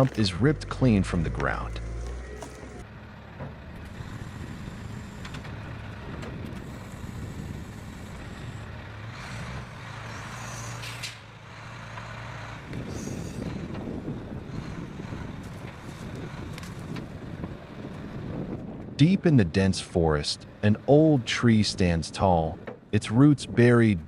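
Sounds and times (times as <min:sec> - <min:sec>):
heavy machine engine under load: 0:00.0 - 0:19.0.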